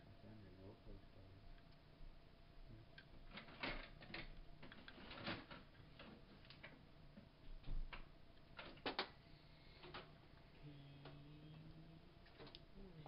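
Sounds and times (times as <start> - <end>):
small parts and tools clicking: 3.0 - 6.8, 7.9 - 9.2.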